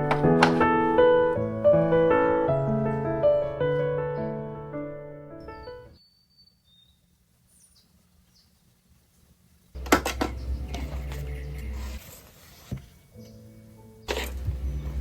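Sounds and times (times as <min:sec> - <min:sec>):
piano music: 0:00.0 - 0:06.0
faint bird chirps: 0:05.5 - 0:08.6
kitchenware clinking and clattering: 0:09.8 - 0:11.6.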